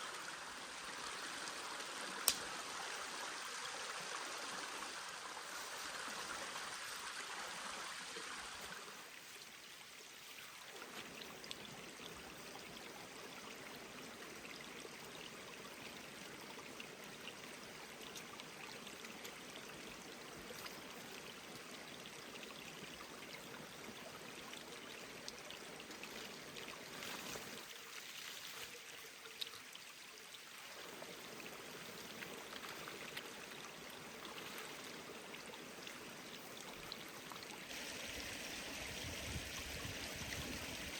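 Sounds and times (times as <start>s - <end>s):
stream water rushing: 24.1s - 40.9s.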